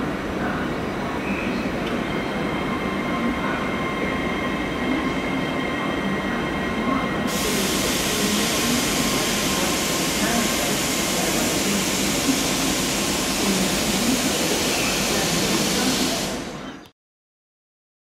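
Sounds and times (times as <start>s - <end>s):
train wheels rumbling on track: 0.0s - 16.7s
bright hiss: 7.3s - 16.5s.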